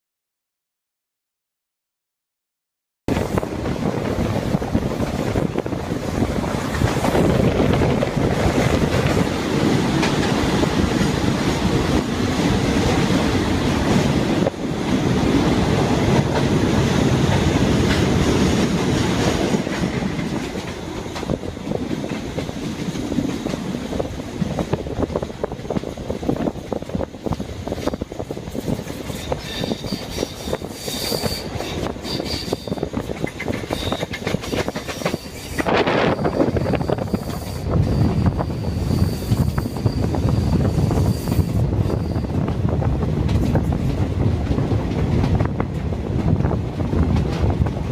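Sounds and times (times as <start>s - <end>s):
train wheels clattering on rails: 3.1s - 47.9s
wheels squealing on rails: 27.7s - 42.6s.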